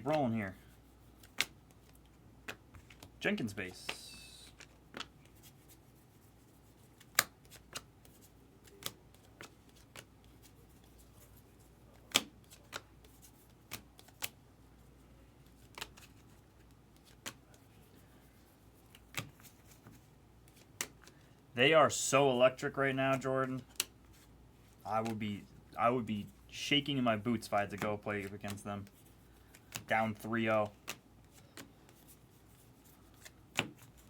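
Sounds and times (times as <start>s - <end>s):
trading cards flipped by hand: 1.2s - 5.8s, 6.5s - 14.4s, 15.4s - 18.1s, 18.8s - 21.3s, 23.6s - 25.2s, 27.3s - 34.0s.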